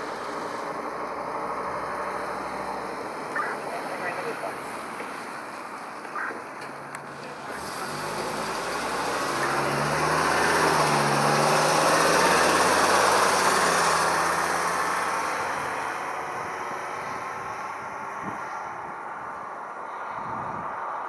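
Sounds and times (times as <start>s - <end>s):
vehicle driving past: 7.1s - 21.0s.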